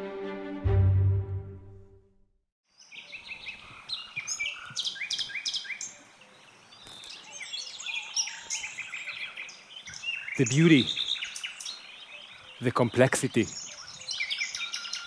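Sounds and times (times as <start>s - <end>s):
music chord: 0.0s - 2.2s
birds chirping and trilling: 2.7s - 15.0s.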